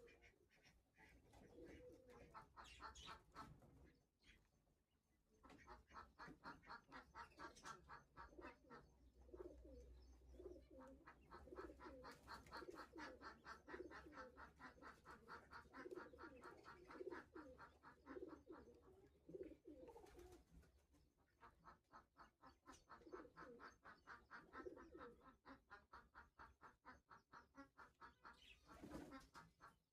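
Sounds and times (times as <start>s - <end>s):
pigeon cooing: 0.0s - 3.8s, 5.7s - 20.6s, 22.7s - 26.0s.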